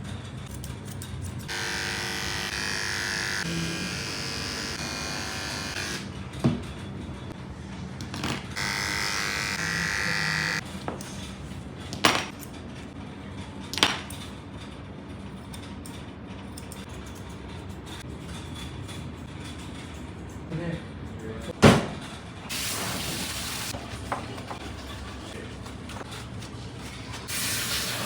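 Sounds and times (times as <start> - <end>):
electric pet clippers buzzing: 1.5 - 6.1, 8.5 - 10.6, 27.3 - 28.0.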